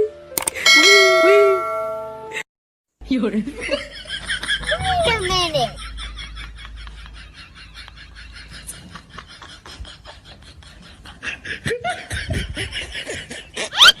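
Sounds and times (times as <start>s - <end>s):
rapid snickering laughter: 5.8s - 14.0s.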